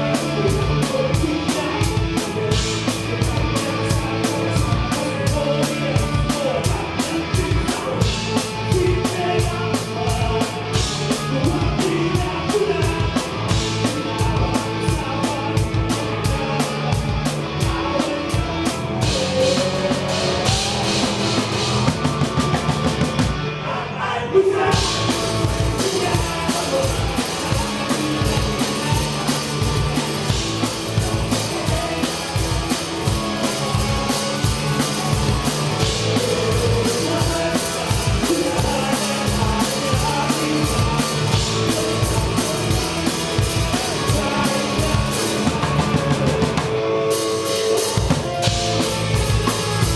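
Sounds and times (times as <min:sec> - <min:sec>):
drum kit beat: 0:00.0 - 0:23.5, 0:24.7 - 0:49.9
live rock band playing: 0:00.0 - 0:23.6, 0:24.7 - 0:49.9
cymbals: 0:24.8 - 0:49.9.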